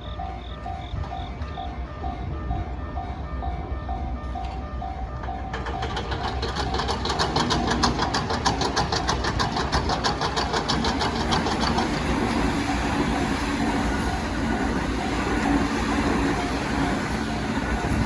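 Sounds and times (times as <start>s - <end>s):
level-crossing alarm bell: 0.0s - 18.0s
train wheels clacking over rail joints: 4.3s - 18.0s.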